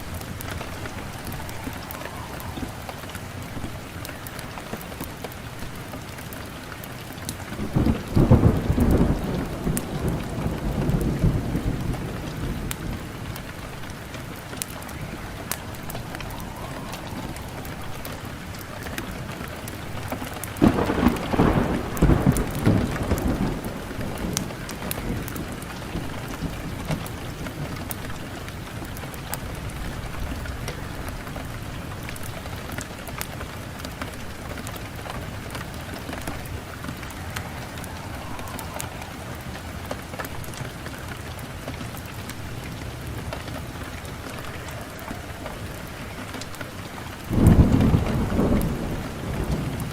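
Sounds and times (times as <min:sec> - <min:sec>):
wood fire crackling and popping: 0:00.0 - 0:49.9
low rumble: 0:14.2 - 0:19.4.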